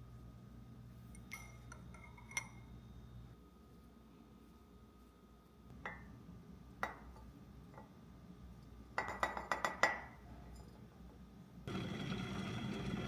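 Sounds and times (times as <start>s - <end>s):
glassware clinking: 1.2s - 2.7s, 9.0s - 10.7s.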